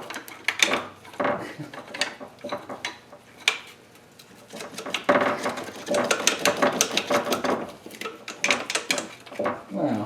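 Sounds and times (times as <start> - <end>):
metal tools knocking on engine: 0.0 - 3.6, 4.5 - 9.6
rapid metallic clicking and rattling: 0.0 - 3.7, 4.4 - 9.6.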